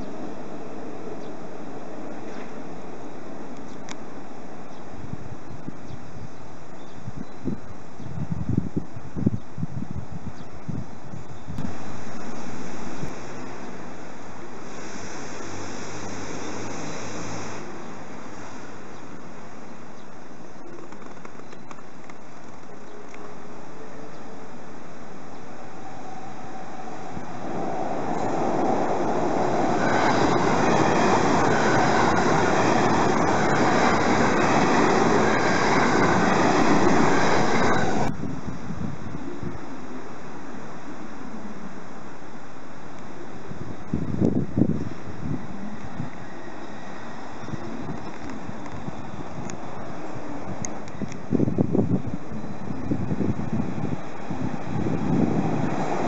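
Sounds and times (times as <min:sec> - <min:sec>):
electric train wheels rushing on rail: 0:00.0 - 0:06.8, 0:11.1 - 0:19.6, 0:22.0 - 0:56.0
wheels clicking on rail: 0:27.4 - 0:38.1.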